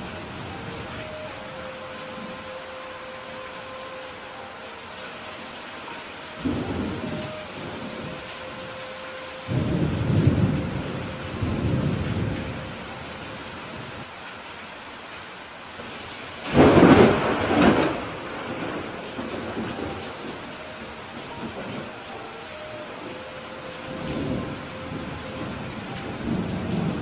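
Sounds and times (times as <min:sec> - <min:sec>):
steady rain: 0:00.0 - 0:27.0
thunder rumbling: 0:06.4 - 0:08.8, 0:09.4 - 0:13.0, 0:16.4 - 0:27.0.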